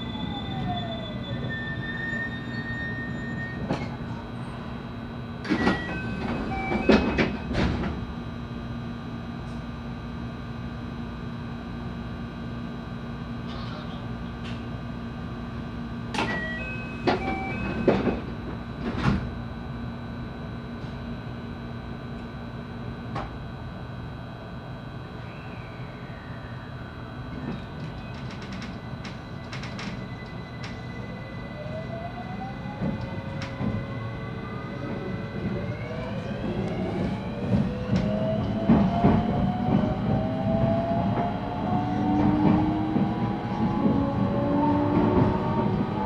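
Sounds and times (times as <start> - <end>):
train car hum: 0.0 - 46.0.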